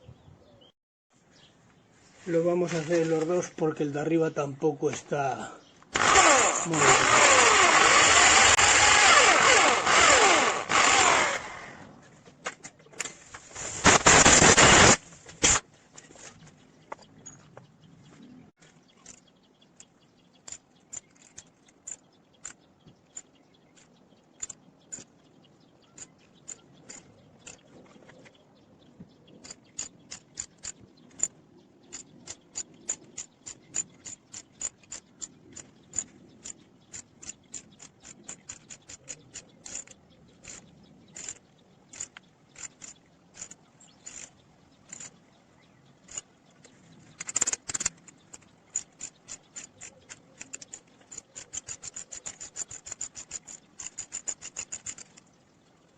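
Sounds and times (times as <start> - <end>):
sharp metallic tool clicks: 19.8 - 25.2, 25.9 - 27.7, 29.4 - 45.2, 46.0 - 46.3, 47.2 - 55.3.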